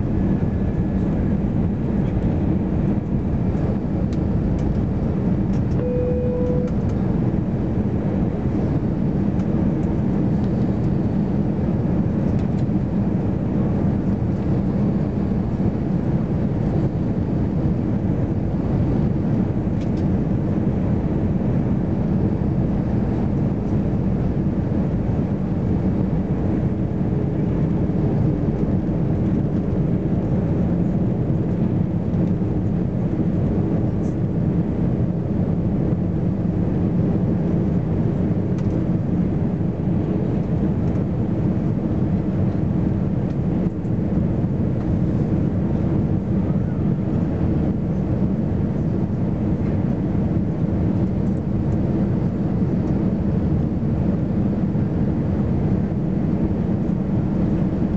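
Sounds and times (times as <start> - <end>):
jet engine drone in cabin: 0.0 - 57.9
faint low hum: 5.5 - 7.5.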